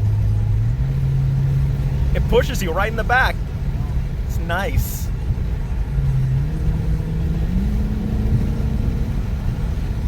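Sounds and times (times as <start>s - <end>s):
car engine accelerating: 0.0s - 10.0s
low road rumble: 0.0s - 10.0s.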